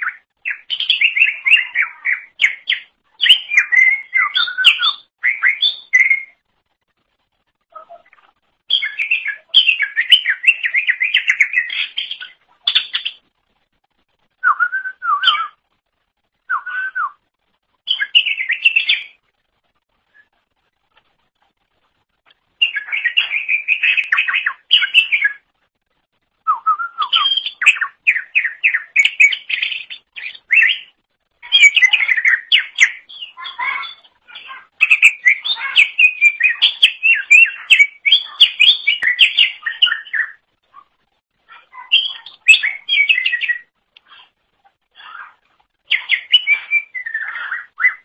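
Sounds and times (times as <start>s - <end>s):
bird singing chirps and whistles: 0.0s - 6.4s, 8.7s - 13.2s, 14.4s - 15.6s, 16.4s - 17.2s, 17.9s - 19.2s, 22.6s - 25.4s, 26.4s - 34.1s, 34.8s - 40.4s, 41.8s - 43.7s, 45.9s - 48.0s.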